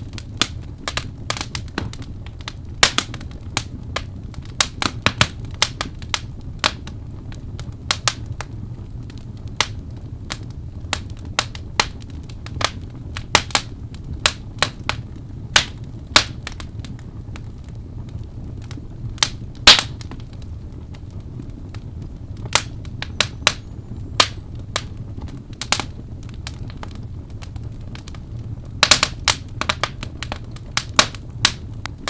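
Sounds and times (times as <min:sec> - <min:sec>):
low rumble of flames: 0:00.0 - 0:32.0
wood fire crackling and popping: 0:00.0 - 0:32.0.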